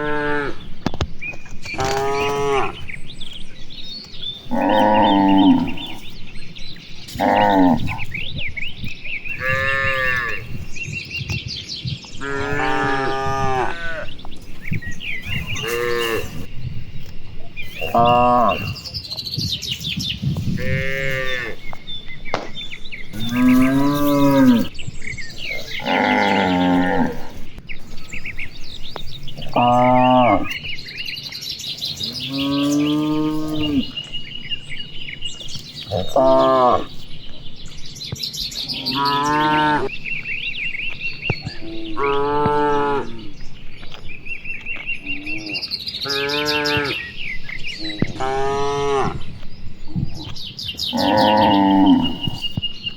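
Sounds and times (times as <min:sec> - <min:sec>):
cattle mooing: 0:00.0 - 0:00.6, 0:01.7 - 0:03.0, 0:04.5 - 0:06.2, 0:07.1 - 0:08.2, 0:09.3 - 0:10.6, 0:12.2 - 0:14.2, 0:15.2 - 0:16.5, 0:17.8 - 0:18.8, 0:20.6 - 0:21.8, 0:23.0 - 0:24.8, 0:25.4 - 0:27.4, 0:29.2 - 0:30.8, 0:32.0 - 0:34.1, 0:35.8 - 0:37.0, 0:38.7 - 0:39.9, 0:41.5 - 0:43.4, 0:45.0 - 0:47.0, 0:47.7 - 0:49.4, 0:50.9 - 0:52.5
birds chirping: 0:00.0 - 0:52.9.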